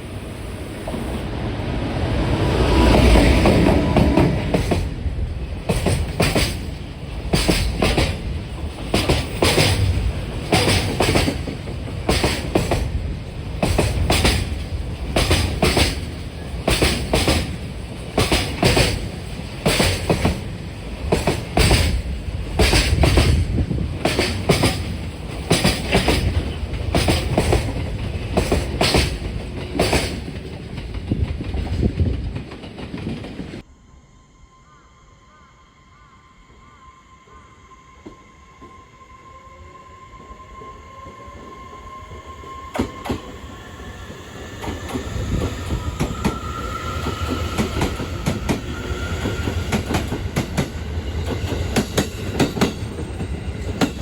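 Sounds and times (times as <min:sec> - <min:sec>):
train wheels clattering: 0:02.8 - 0:33.6, 0:44.6 - 0:54.0.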